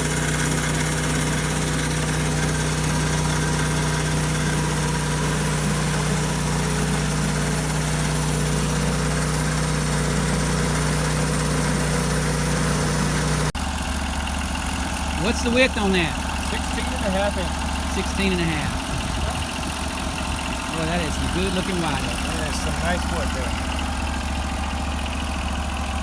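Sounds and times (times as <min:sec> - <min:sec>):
sawmill engine running: 0:00.0 - 0:26.0.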